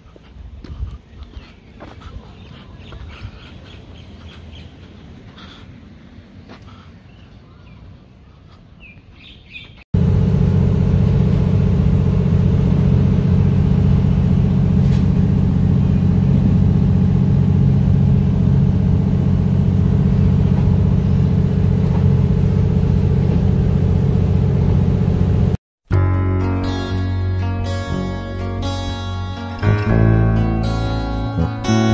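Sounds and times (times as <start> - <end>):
train rumble inside carriage: 10.0 - 25.6.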